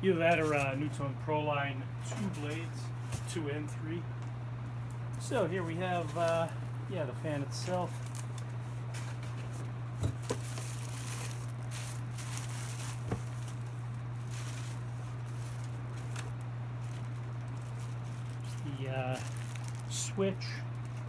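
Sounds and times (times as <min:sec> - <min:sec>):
steady low hum: 0:00.0 - 0:21.0
packaging rustling and crinkling: 0:05.3 - 0:21.0.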